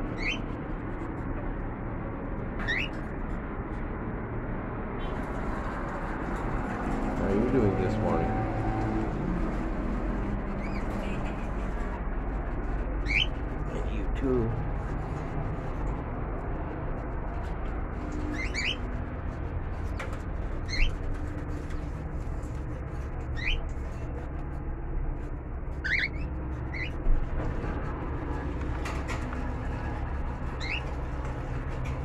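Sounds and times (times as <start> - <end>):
pet birds chirping: 0.0 - 0.5, 2.6 - 3.0, 10.5 - 12.0, 13.0 - 13.4, 18.1 - 18.9, 19.9 - 22.0, 23.2 - 24.1, 25.8 - 27.0, 30.5 - 31.0.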